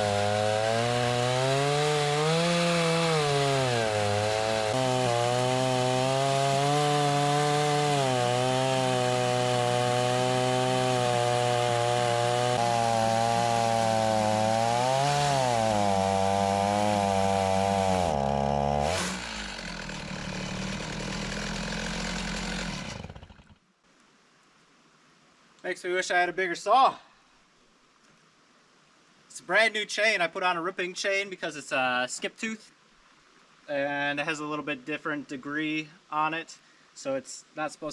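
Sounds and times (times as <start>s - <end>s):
chainsaw cutting through log: 0.0s - 23.6s.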